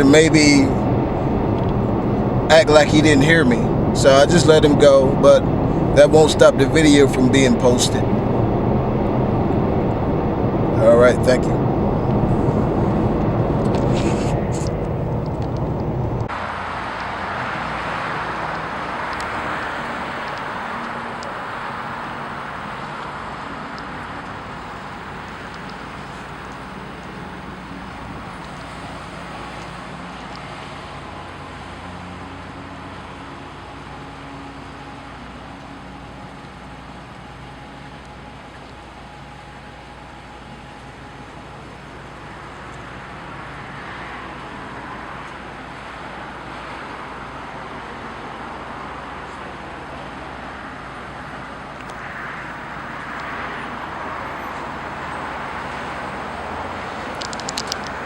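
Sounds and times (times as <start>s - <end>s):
car engine hum: 0.0s - 46.1s
tyre and road noise: 0.0s - 58.0s.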